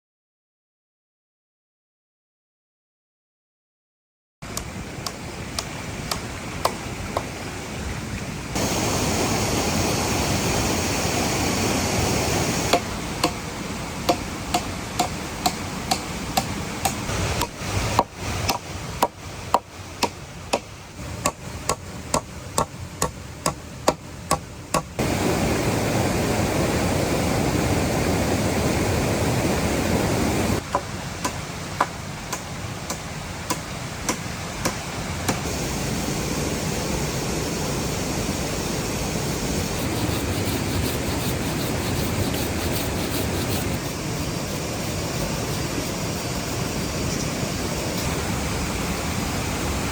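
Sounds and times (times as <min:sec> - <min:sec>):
waterfall rushing: 0:04.4 - 0:20.4, 0:25.0 - 0:49.9
tool strikes on wood: 0:12.7 - 0:13.4, 0:14.1 - 0:24.9.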